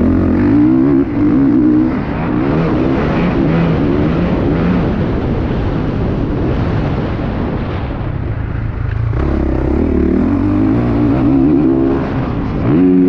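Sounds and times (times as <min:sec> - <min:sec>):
motocross engine under throttle: 0:00.0 - 0:05.5, 0:08.7 - 0:13.0.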